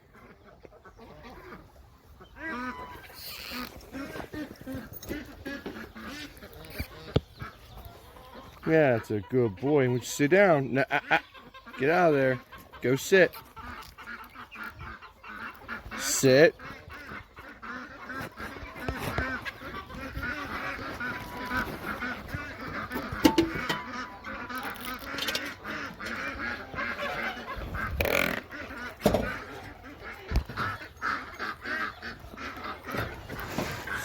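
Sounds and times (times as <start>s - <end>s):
flock of birds chattering: 0.0s - 34.0s
sharp knocks: 23.2s - 23.9s.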